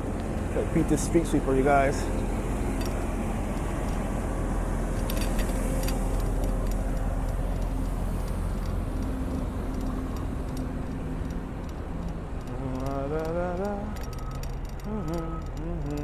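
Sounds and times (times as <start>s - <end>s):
street sweeper engine running: 0.0s - 15.9s
light clicks: 5.0s - 16.0s.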